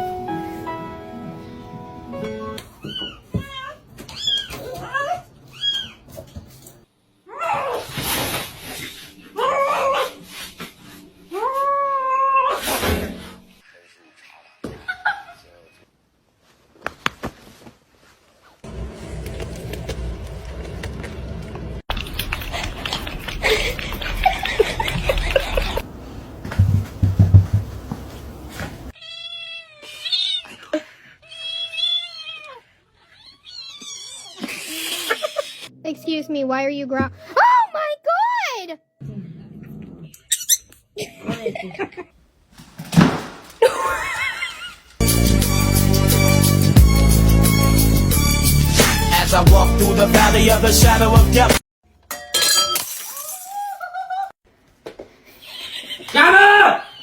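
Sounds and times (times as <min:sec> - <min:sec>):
heavy low thumps: 0:26.5 - 0:28.0.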